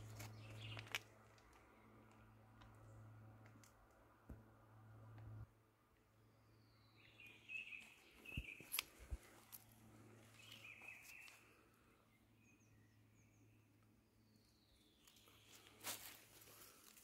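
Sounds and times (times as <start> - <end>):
birdsong whistle and chirps: 6.6 - 9.0, 10.4 - 11.6.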